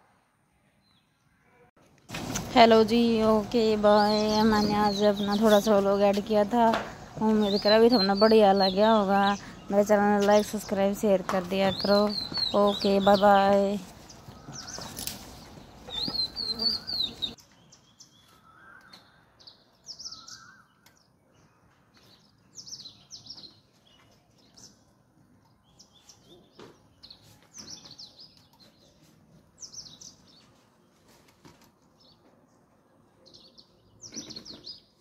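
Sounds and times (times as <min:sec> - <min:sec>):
birds chirping: 0:02.6 - 0:31.0.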